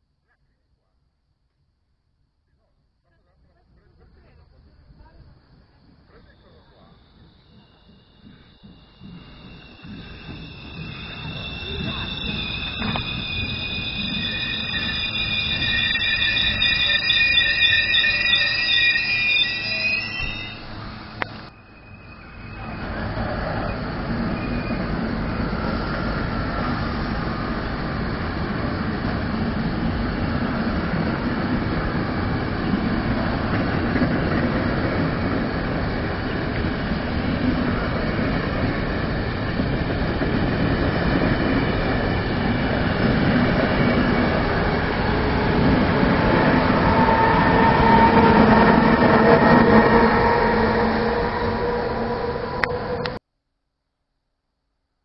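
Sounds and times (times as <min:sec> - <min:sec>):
train wheels rumbling on rails: 0:04.1 - 0:53.2
thin squealing tones: 0:06.2 - 0:27.4, 0:41.6 - 0:53.2.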